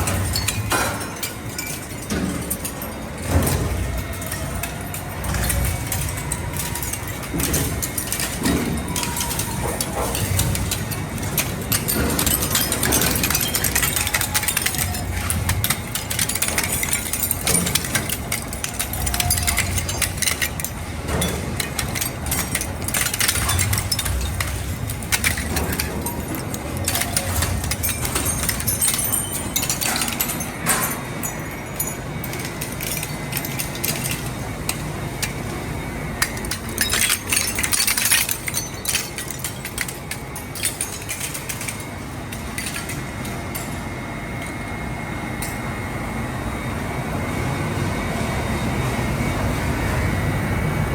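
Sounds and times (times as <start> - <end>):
metal scrap clanking in shredder: 0.0 - 43.8.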